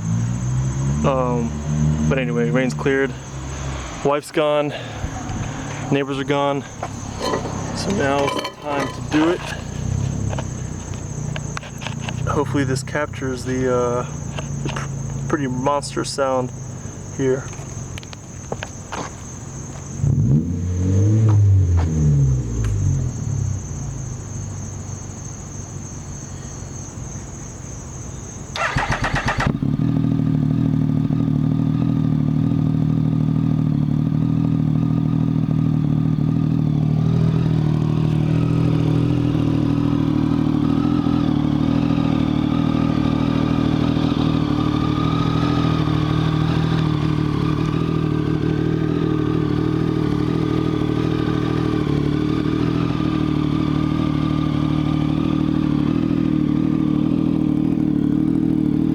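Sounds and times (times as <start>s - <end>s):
motorcycle engine idling: 2.1s - 20.0s, 22.5s - 58.9s
motorcycle engine cranking: 6.9s - 12.4s, 28.5s - 29.9s.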